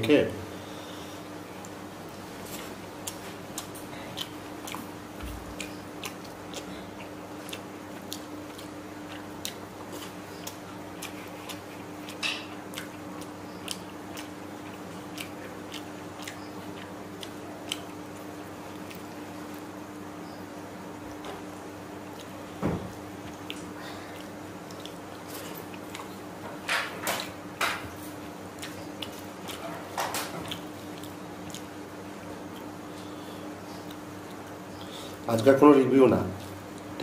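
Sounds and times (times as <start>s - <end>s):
steady low hum: 0.0s - 37.0s
person chewing food: 1.0s - 20.1s, 21.0s - 35.3s.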